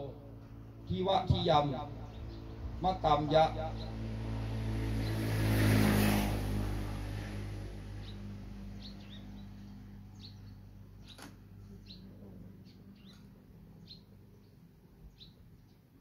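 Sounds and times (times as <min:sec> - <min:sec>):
small birds chirping: 0:00.0 - 0:04.2, 0:07.7 - 0:16.0.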